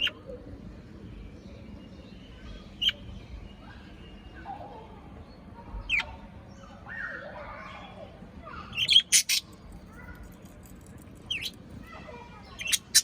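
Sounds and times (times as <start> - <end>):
parrot chirping: 8.8 - 11.9.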